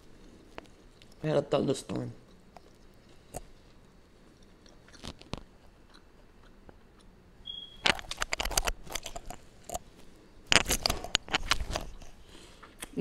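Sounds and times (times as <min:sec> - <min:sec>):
wet chewing mouth clicks: 0:02.2 - 0:07.1.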